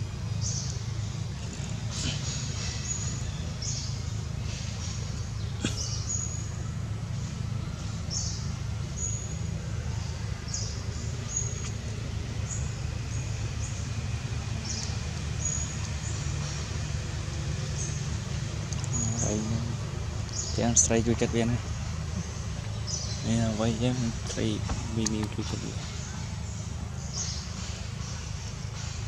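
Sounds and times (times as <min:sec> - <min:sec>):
steady low rumble: 0:00.0 - 0:29.0
bird high chirp: 0:01.9 - 0:11.8, 0:18.8 - 0:29.0.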